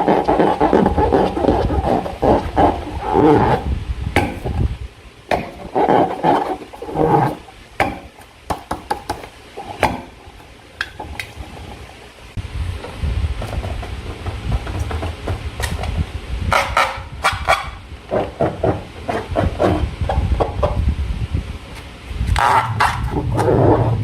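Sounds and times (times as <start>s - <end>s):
trapped air clicks and pops: 6.7s - 20.9s.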